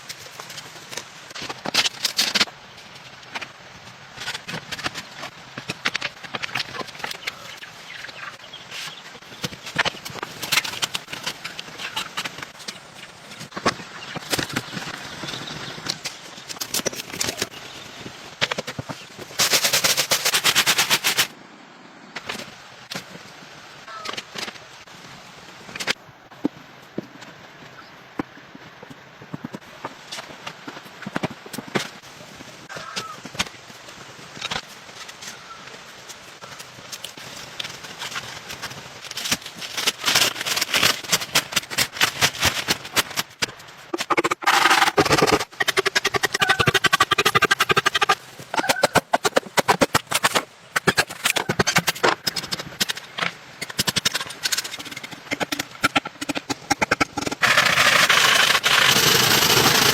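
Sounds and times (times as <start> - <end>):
fast run of clicks: 18.4 - 21.3, 36.1 - 59.9
rapid sharp knocks: 44.0 - 52.4.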